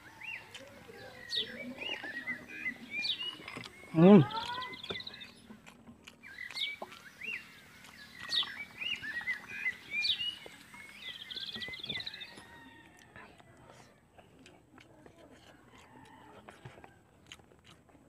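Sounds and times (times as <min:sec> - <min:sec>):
birds chirping and calling: 0:00.0 - 0:12.8.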